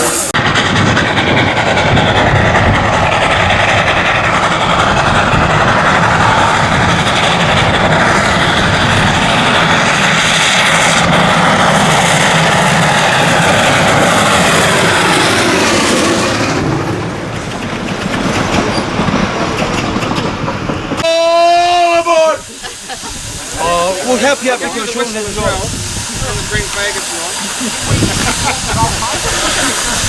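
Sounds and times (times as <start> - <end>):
steam whistle tone: 0.0 - 0.4, 21.0 - 23.0
steam locomotive rumble and clatter: 0.0 - 30.0.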